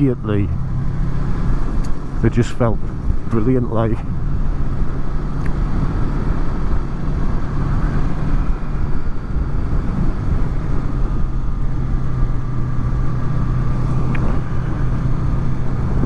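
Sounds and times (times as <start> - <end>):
motorcycle engine cruising: 0.0 - 16.0
wind noise: 0.0 - 16.0.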